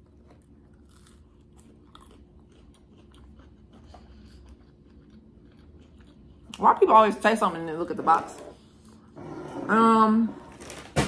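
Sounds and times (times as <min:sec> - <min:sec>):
crunching and chewing food: 0:00.0 - 0:06.9.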